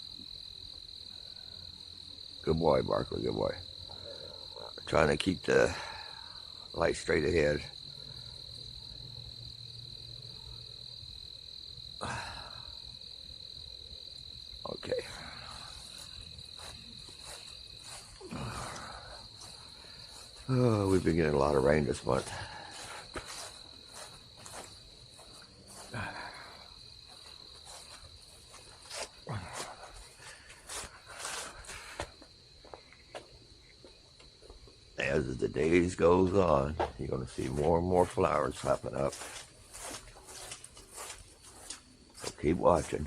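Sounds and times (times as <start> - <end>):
crickets trilling: 0.0 - 43.0
night insects chorus: 0.0 - 43.0
scuffs and taps: 22.8 - 25.9, 36.8 - 42.9.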